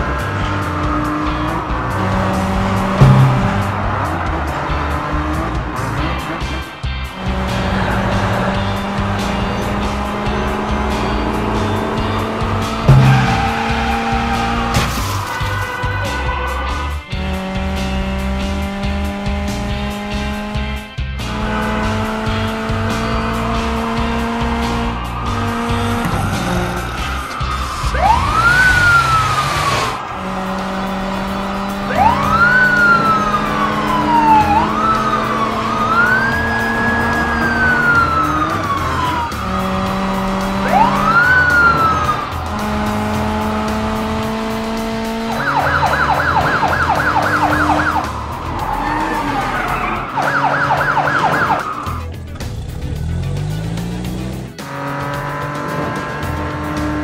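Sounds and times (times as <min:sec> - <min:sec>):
background music: 0:00.0 - 0:57.0
cartoon police siren: 0:07.2 - 0:17.5, 0:21.3 - 0:52.1.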